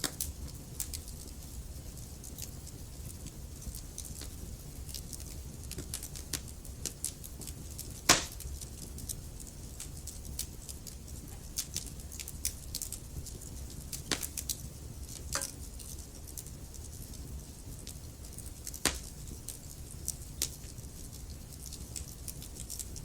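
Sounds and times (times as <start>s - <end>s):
burning logs crackling: 0.0s - 23.0s
low rumble of flames: 0.0s - 23.0s
sharp loud pop of fire: 8.1s - 8.4s.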